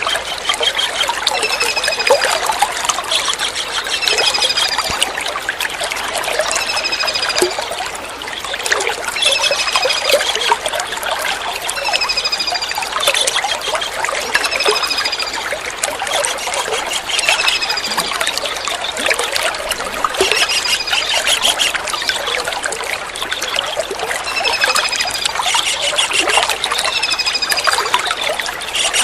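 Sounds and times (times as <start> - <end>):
trickling water: 0.0 - 29.0
kingfisher trilled calls: 16.2 - 18.6.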